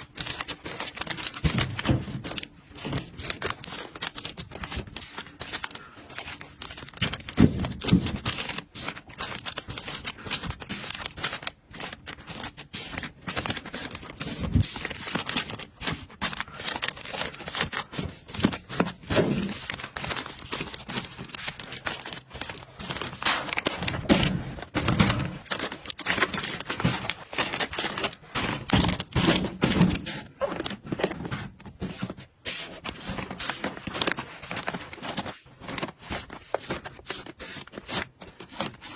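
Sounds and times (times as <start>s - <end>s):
crinkling rustles: 0.0s - 38.9s.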